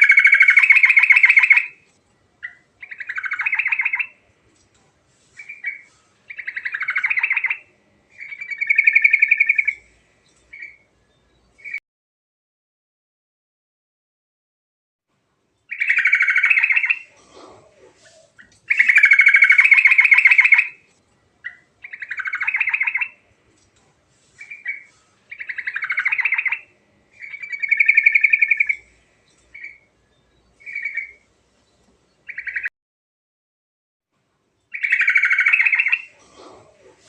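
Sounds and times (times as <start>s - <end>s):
bird singing bubbling phrases: 2.4s - 4.2s, 15.7s - 20.7s, 21.4s - 23.2s, 24.5s - 29.9s, 32.2s - 32.7s, 34.7s - 37.0s.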